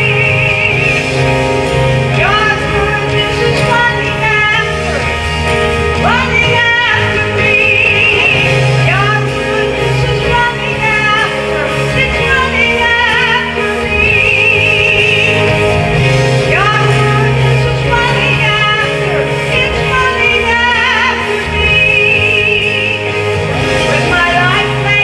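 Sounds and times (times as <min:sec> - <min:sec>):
instrumental accompaniment: 0:00.0 - 0:25.0
woman singing with vibrato: 0:00.0 - 0:25.0.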